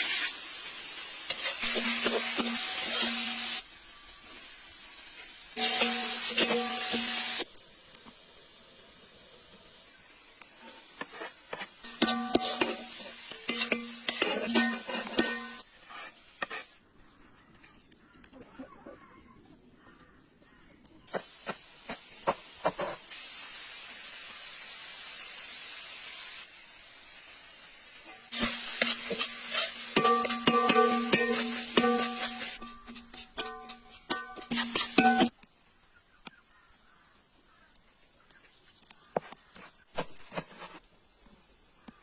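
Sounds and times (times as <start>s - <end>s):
food sizzling in a pan: 0.0s - 16.8s, 21.1s - 35.5s.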